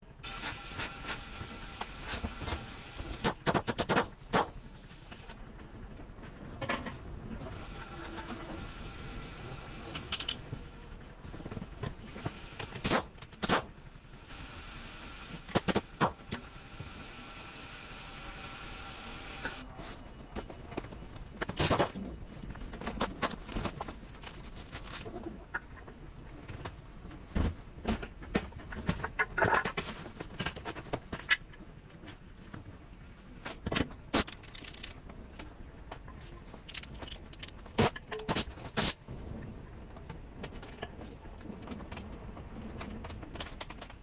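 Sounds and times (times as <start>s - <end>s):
steady mechanical whine: 0.0s - 44.0s.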